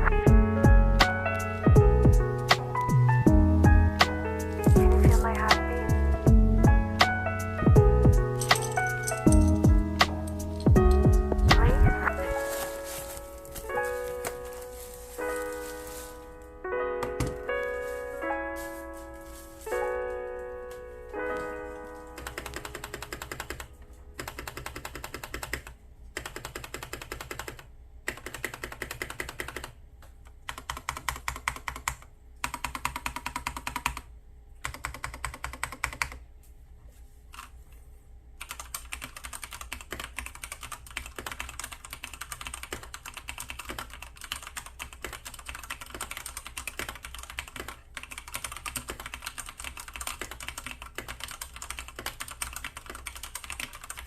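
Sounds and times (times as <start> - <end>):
mechanical keyboard typing: 7.8 - 12.4, 22.1 - 29.8, 30.5 - 36.2, 38.4 - 54.0.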